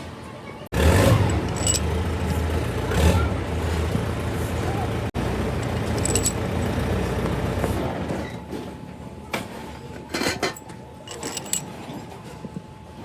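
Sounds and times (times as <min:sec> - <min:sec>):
metal tools clinking: 0:01.1 - 0:02.4, 0:05.5 - 0:07.4, 0:10.1 - 0:11.9
low steady rumble: 0:01.1 - 0:07.9.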